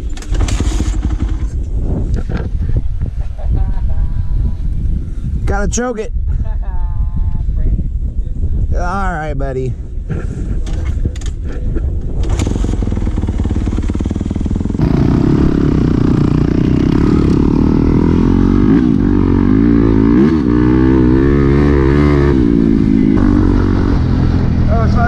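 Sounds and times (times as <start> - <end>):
dirt bike engines running: 0.0 - 5.1, 10.1 - 25.0
louder engine revving: 14.7 - 25.0.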